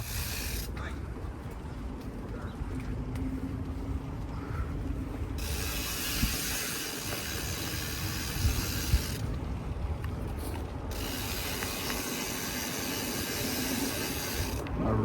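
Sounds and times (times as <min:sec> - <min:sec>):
bike freewheel hub clicking: 0:00.0 - 0:00.8, 0:05.4 - 0:14.7.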